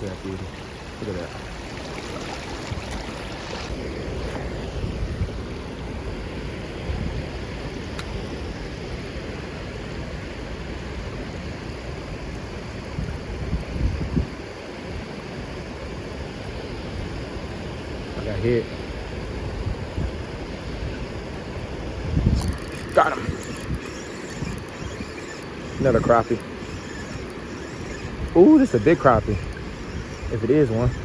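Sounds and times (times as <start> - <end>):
wind buffeting microphone: 19.0 - 31.0.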